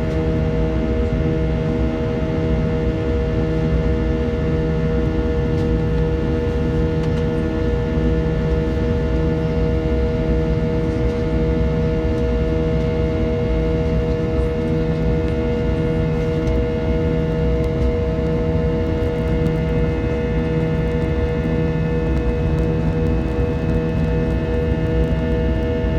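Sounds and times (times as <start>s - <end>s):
jet engines humming in cabin: 0.0s - 25.9s.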